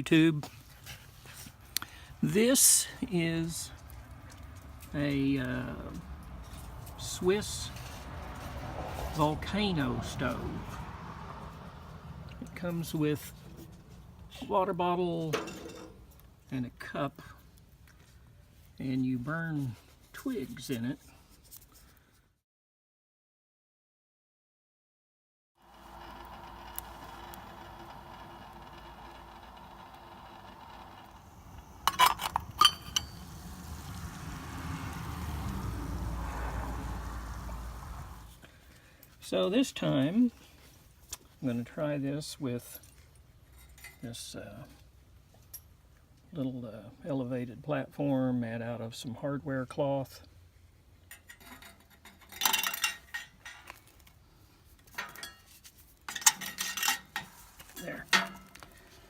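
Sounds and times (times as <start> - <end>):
metal clinking and rattling: 15.3 - 16.2, 27.4 - 33.6, 51.1 - 54.0, 54.9 - 58.8
metal parts clinking: 31.8 - 33.3, 56.1 - 58.6.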